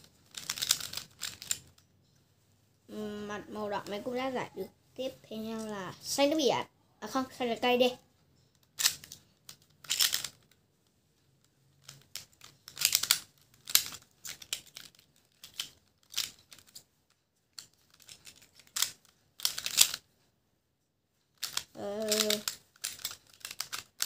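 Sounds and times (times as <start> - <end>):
plastic puzzle clicking and twisting: 0.1 - 1.8, 8.5 - 10.6, 11.4 - 16.9, 17.5 - 20.1, 21.3 - 24.0.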